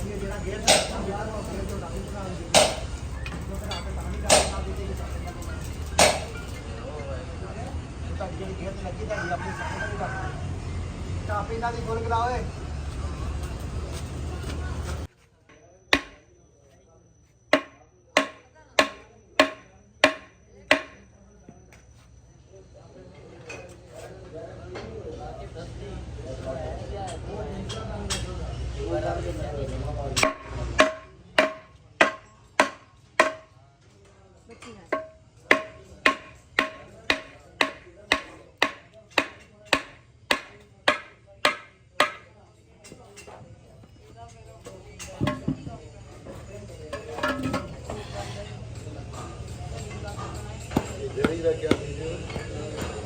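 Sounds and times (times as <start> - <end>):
hammer striking metal: 0.1 - 4.8, 5.9 - 6.6, 16.0 - 16.3, 17.5 - 21.0, 30.2 - 33.6, 34.9 - 42.3, 50.6 - 53.0.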